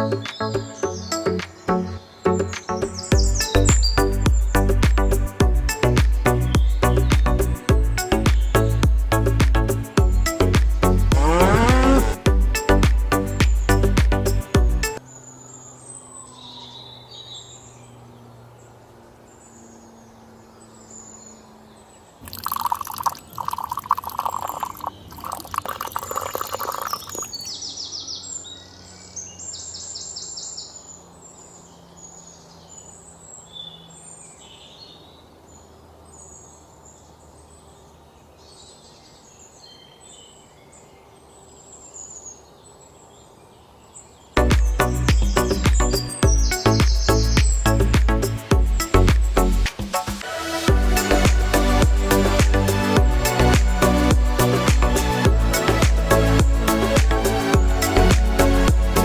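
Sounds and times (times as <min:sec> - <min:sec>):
birds chirping: 0:00.0 - 0:59.0
water pouring: 0:22.2 - 0:27.5.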